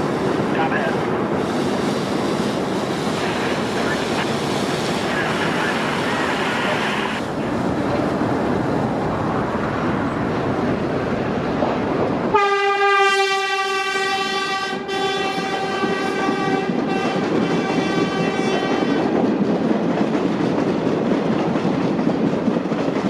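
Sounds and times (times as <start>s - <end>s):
subway train on rails: 0.0s - 23.0s
train horn blast: 12.3s - 19.0s.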